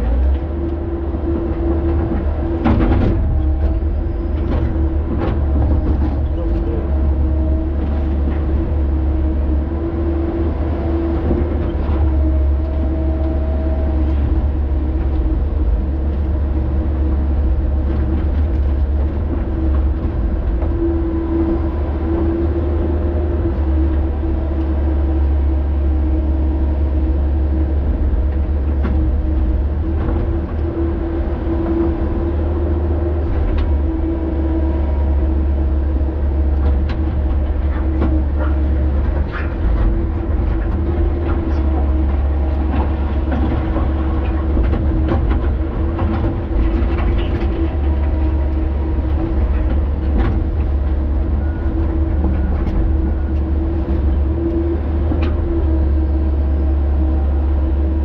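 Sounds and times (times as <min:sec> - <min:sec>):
excavator diesel engine running: 0:00.0 - 0:58.0
knocks and clanks: 0:02.0 - 0:03.8.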